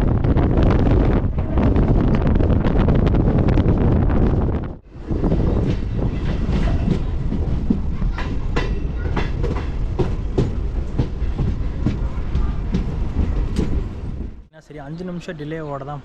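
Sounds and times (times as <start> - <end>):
electric train rumbling: 0.0 - 14.5
wheels clicking over rail joints: 5.0 - 14.4.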